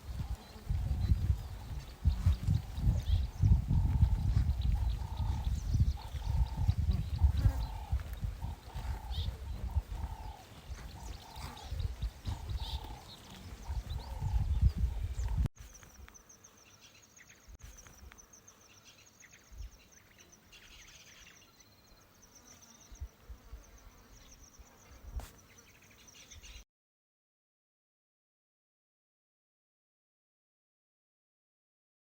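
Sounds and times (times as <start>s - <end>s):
wind rumble: 0.0s - 15.5s
animal calling: 2.6s - 15.4s.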